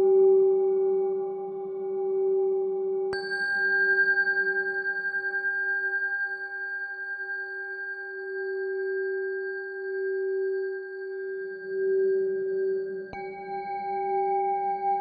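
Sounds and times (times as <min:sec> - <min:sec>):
singing bowl ringing: 0:03.1 - 0:15.0.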